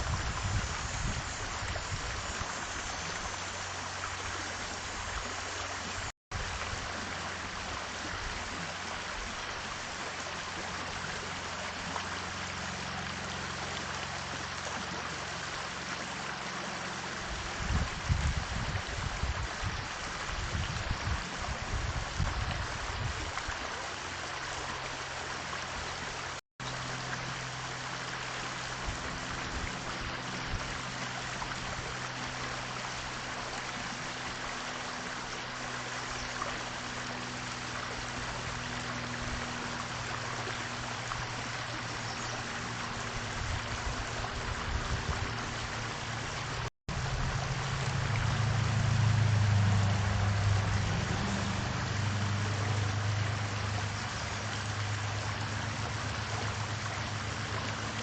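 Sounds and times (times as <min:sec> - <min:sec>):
low hum: 0:28.5 - 0:58.0.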